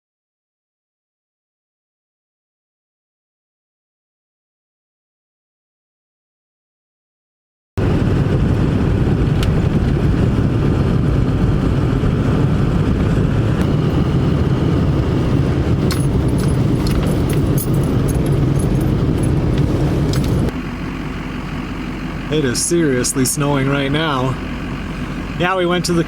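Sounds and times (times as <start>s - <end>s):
vehicle engine and road rumble: 7.8s - 26.0s
keys jingling: 15.9s - 20.5s.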